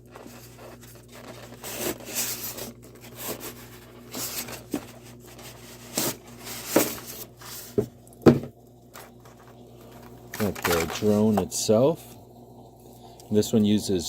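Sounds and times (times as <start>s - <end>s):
packaging rustling: 0.0s - 7.9s, 9.0s - 11.4s.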